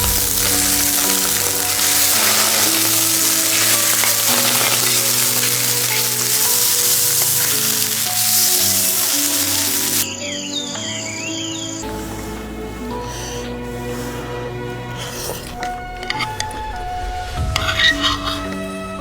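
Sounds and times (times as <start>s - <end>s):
food sizzling in a hot pan: 0.0s - 10.1s
background music: 0.0s - 19.0s.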